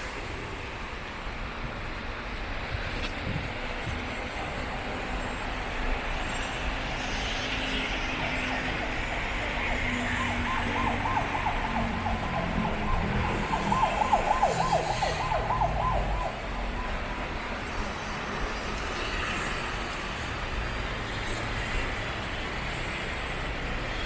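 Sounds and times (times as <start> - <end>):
city traffic hiss: 0.0 - 24.0
emergency siren yelping: 8.6 - 17.7.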